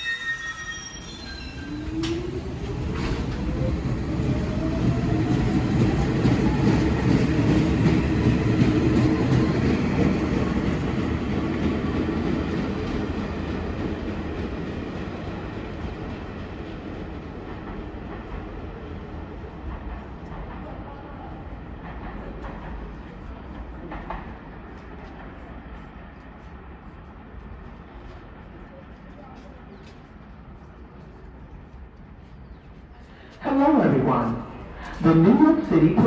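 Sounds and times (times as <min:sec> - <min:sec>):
wheels clattering on rail: 0:21.5 - 0:26.4.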